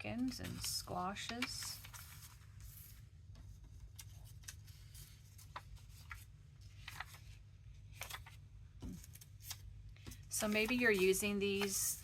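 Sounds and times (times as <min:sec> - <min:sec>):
paper sheets rustling: 0:00.0 - 0:12.0.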